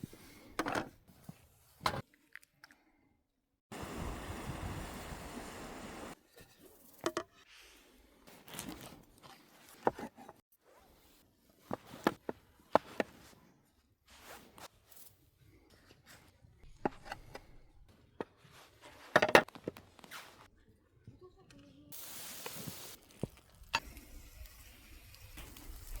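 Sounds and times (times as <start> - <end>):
objects being handled: 8.3 - 14.8, 15.8 - 20.5.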